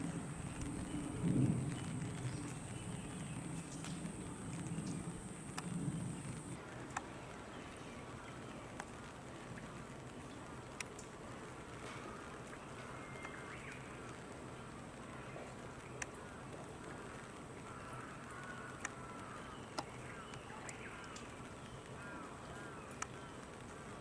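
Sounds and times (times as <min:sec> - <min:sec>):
background hiss and hum: 0:00.0 - 0:06.6
distant bird calls: 0:00.0 - 0:06.6
sharp ticks: 0:04.8 - 0:06.5.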